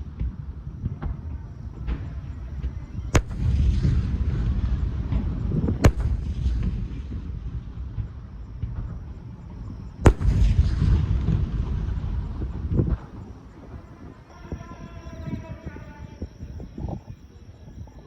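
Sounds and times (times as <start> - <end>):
fireworks loud bangs: 0.0 - 14.1
low rumble of fireworks: 0.0 - 18.0
fireworks faint pops: 0.1 - 13.9.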